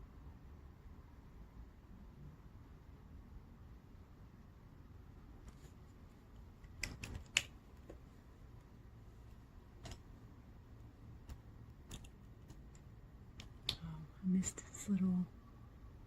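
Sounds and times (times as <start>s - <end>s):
faint steady hum: 0.0s - 16.0s
plastic pens clicking and tapping: 6.6s - 7.6s, 11.2s - 13.8s.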